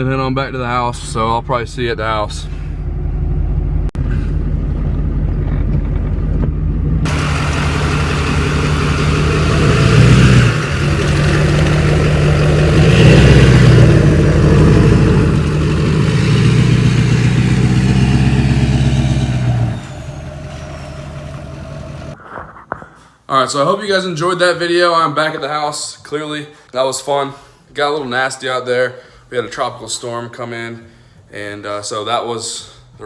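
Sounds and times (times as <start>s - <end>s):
pickup truck engine driving off: 7.0s - 22.2s
rushing noise: 7.1s - 22.2s.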